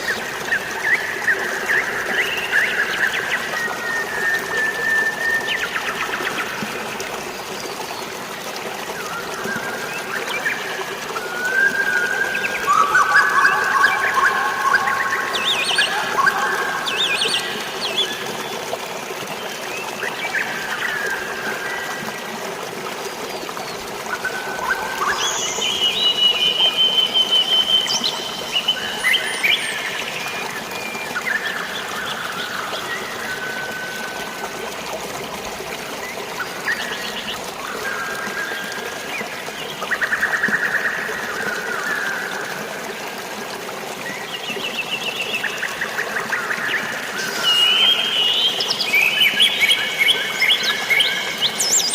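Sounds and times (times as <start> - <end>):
flowing water: 0.0 - 51.9
birds chirping and trilling: 9.4 - 18.8, 44.4 - 51.9.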